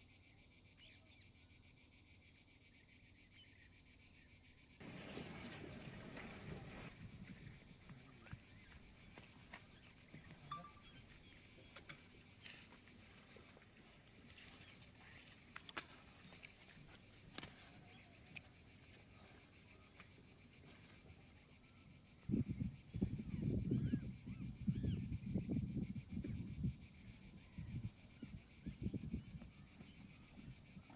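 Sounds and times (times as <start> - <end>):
high-pitched insect chorus: 0.0 - 30.9
low rustling: 4.8 - 9.8.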